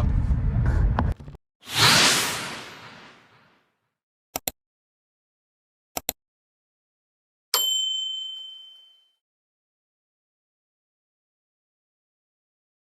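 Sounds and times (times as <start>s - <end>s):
bell-like ding: 7.6s - 9.2s.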